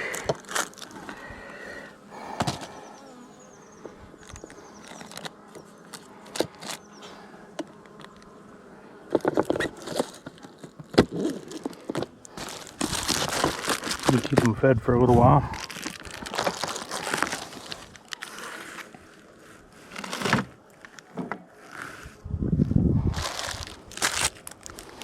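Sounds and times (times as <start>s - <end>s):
bees buzzing: 0.0s - 25.0s.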